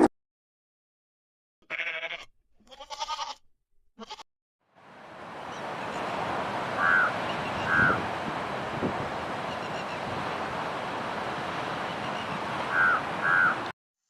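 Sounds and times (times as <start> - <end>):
farm animal bleating: 1.6 - 3.4, 4.0 - 4.2
outdoor wind noise: 4.7 - 13.5
honk-like call: 6.8 - 8.0.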